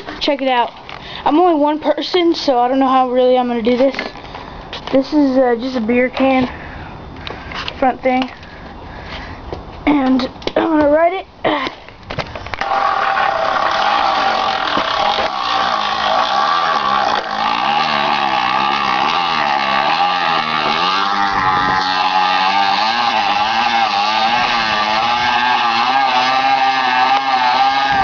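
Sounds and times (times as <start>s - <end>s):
can buzzing against bicycle spokes: 12.6s - 28.0s.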